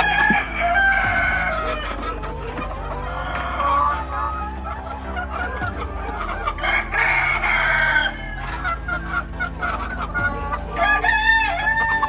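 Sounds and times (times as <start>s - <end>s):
rooster crowing: 0.0s - 1.9s, 6.5s - 8.7s, 10.8s - 12.0s
hens clucking: 0.0s - 12.0s.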